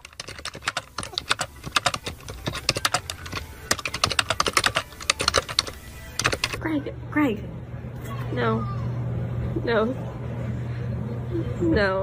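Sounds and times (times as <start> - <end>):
rapid sharp clicks and taps: 0.0 - 6.6.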